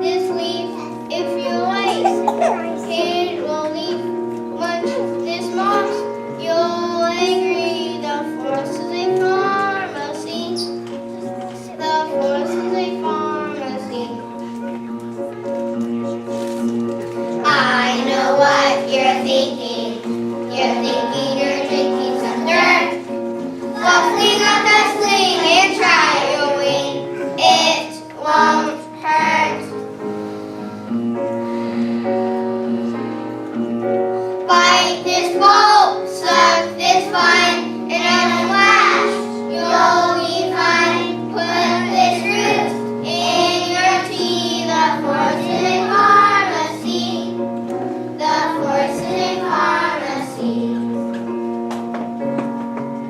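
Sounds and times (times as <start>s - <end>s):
musical accompaniment: 0.0s - 53.0s
children singing: 1.6s - 3.6s, 17.4s - 29.8s, 34.5s - 47.4s, 48.2s - 51.0s.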